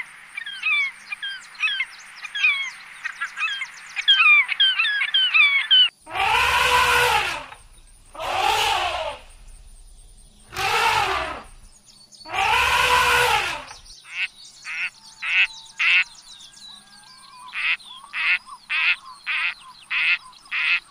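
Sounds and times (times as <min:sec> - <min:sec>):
faint birdsong: 0:00.0 - 0:20.9
elephants trumpeting: 0:06.1 - 0:09.7, 0:10.4 - 0:11.6, 0:12.3 - 0:13.9.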